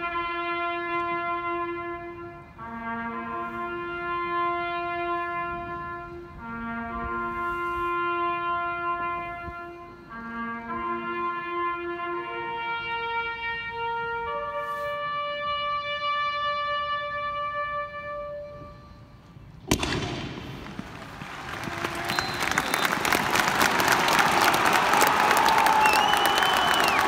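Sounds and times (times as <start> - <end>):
slow brass music: 0.0 - 19.2.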